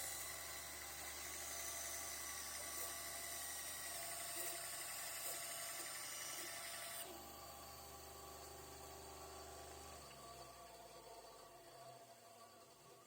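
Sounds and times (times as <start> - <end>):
bandsaw motor humming: 0.0 - 10.2.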